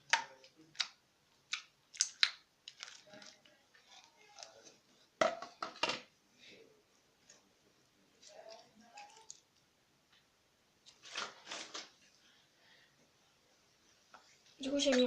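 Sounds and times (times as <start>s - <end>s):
slime popping and crackling: 0.0s - 4.5s.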